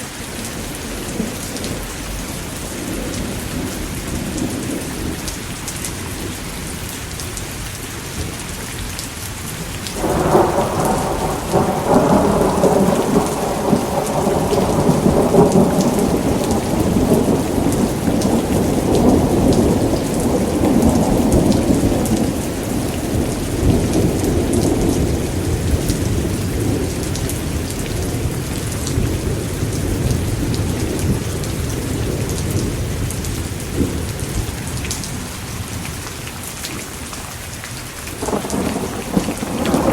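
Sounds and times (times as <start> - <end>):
heavy rain: 0.0 - 39.9
thunder rumbling: 9.9 - 35.9, 38.2 - 39.9.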